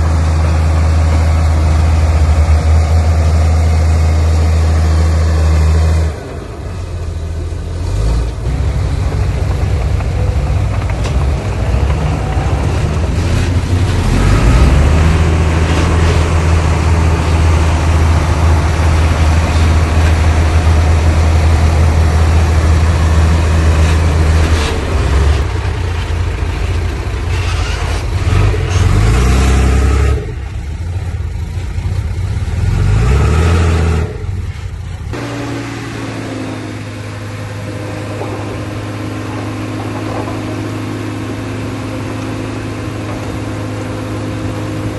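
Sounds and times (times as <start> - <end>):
heavy diesel engine under load: 0.0 - 44.9.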